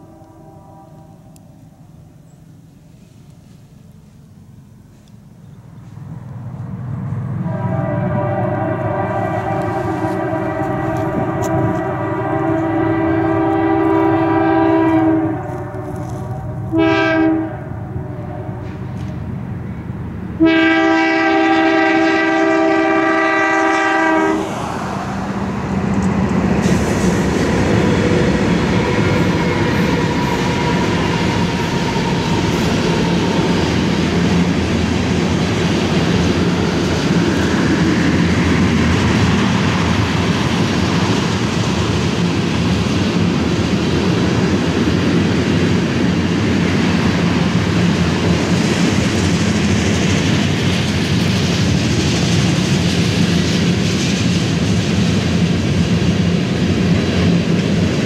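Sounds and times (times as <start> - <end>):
locomotive air horn blasts: 0.0 - 1.4, 7.4 - 19.0, 20.4 - 24.6, 26.6 - 34.6
locomotive engine rumble: 0.0 - 58.0.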